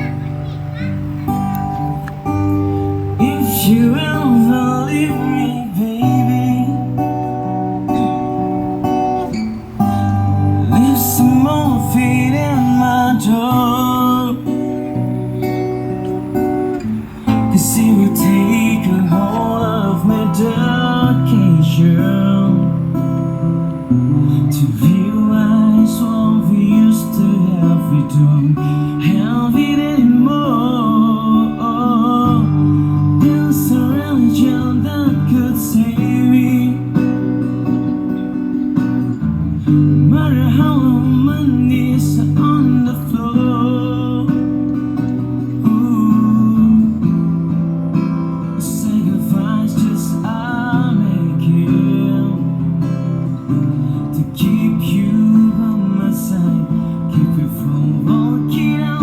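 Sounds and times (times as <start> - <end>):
acoustic guitar strumming: 0.0 - 59.0
person singing: 3.1 - 7.3, 10.1 - 15.6.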